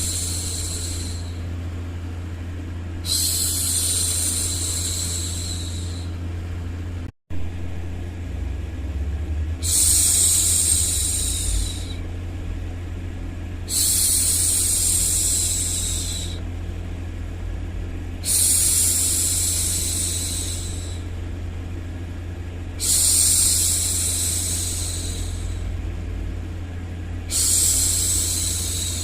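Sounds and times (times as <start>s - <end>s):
woman shushing: 0.0s - 1.4s, 3.0s - 6.1s, 9.6s - 12.0s, 13.7s - 16.4s, 18.2s - 21.0s, 22.8s - 25.7s, 27.3s - 29.0s
low white-noise hum: 0.0s - 29.0s.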